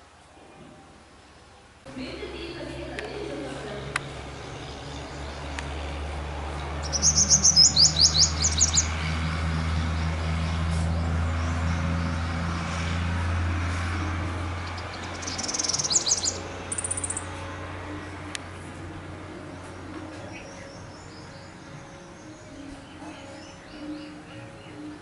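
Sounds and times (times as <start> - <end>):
small bird chirping: 6.8 - 9.0, 14.6 - 17.3.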